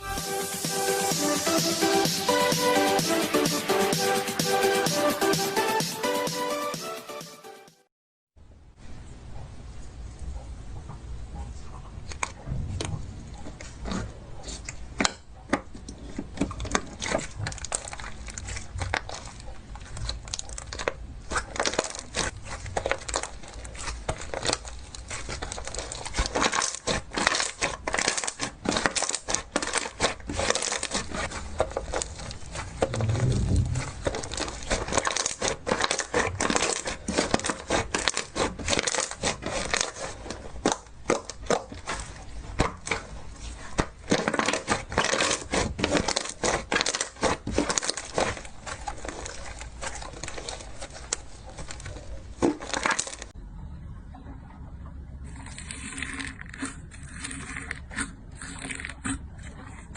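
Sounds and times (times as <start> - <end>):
slime crackling and popping: 16.4 - 53.3
low thump: 32.9 - 34.2.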